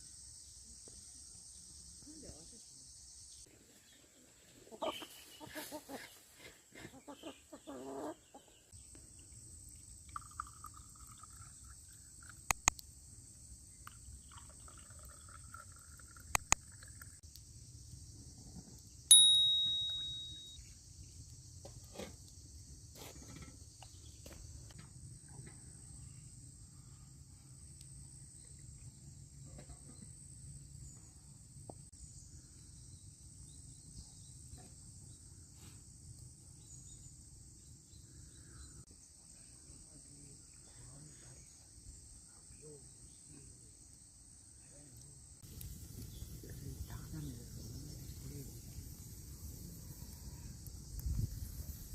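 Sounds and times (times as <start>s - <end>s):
crickets trilling: 0.0s - 3.5s, 8.3s - 51.9s
sharp clicks: 12.5s - 12.8s
ringing clink: 19.1s - 20.6s.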